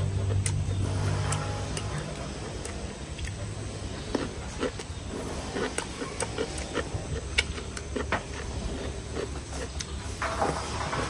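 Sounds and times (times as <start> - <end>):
sharp mouth clicks: 0.0 - 8.6
man chewing wetly: 0.0 - 10.2.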